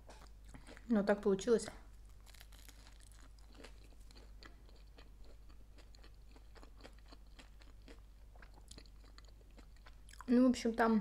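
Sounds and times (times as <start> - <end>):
chewing with crunches: 0.0 - 0.9, 2.1 - 10.3.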